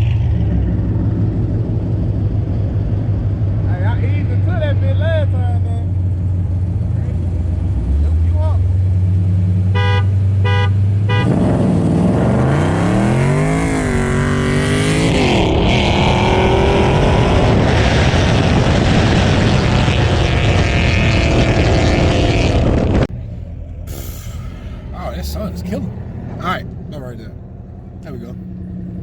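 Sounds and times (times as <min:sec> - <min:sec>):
car engine idling: 0:00.0 - 0:11.2, 0:23.0 - 0:29.0
car engine revving hard: 0:09.6 - 0:29.0.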